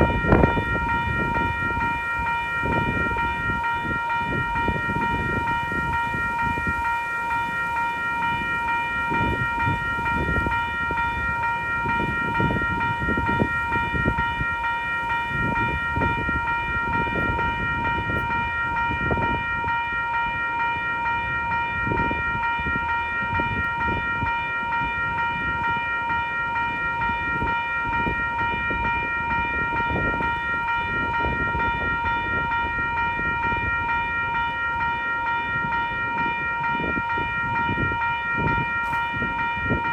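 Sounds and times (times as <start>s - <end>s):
steady high-pitched tone: 0.0s - 39.9s
wind buffeting microphone: 0.0s - 39.9s.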